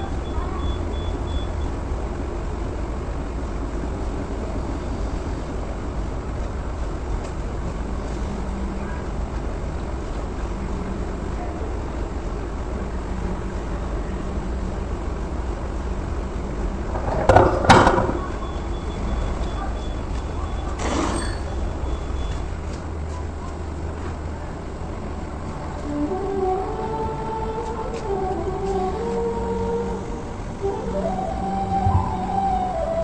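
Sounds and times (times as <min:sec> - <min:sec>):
low mechanical rumble: 0:00.0 - 0:33.0
loud clatter: 0:16.9 - 0:18.4.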